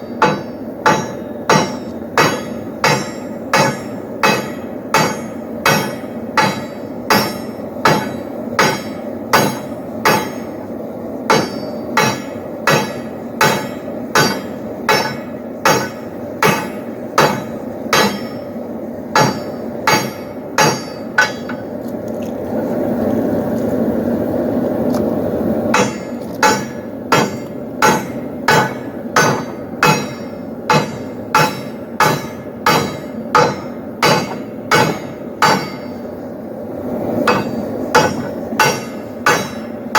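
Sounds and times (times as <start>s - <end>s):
hammer striking steel on anvil: 0.0s - 10.6s, 11.3s - 21.7s, 25.7s - 36.0s, 37.2s - 39.9s
steady rushing noise: 0.0s - 39.9s.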